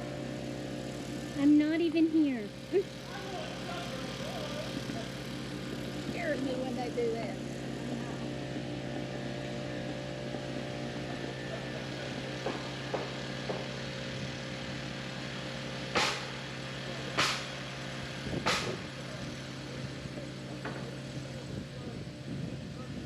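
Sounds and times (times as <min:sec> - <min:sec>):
small engine running: 0:00.0 - 0:23.0
loud sharp knocks on wood: 0:12.4 - 0:13.8, 0:15.9 - 0:16.4, 0:17.2 - 0:17.5, 0:18.4 - 0:18.9.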